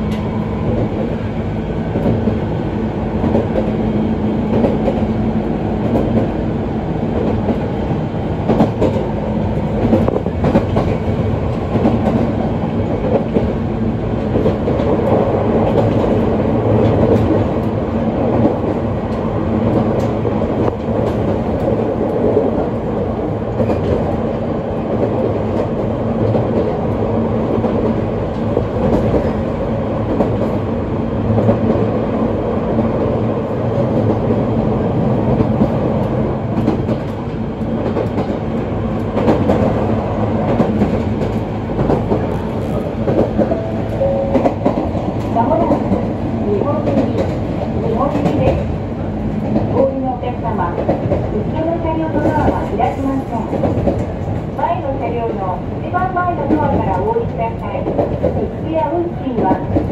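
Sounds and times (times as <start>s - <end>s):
train rolling rumble: 0.0s - 59.9s.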